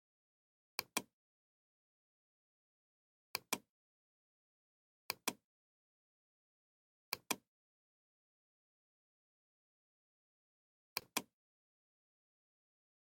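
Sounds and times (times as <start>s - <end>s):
computer mouse clicking: 0.8s - 1.1s, 3.4s - 3.7s, 5.1s - 5.4s, 7.1s - 7.4s, 11.0s - 11.3s.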